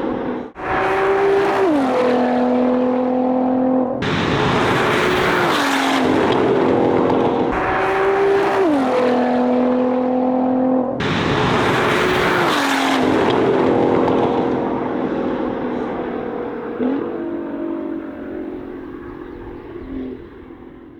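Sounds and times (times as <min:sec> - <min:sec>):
sports car driving past: 0:00.0 - 0:20.9.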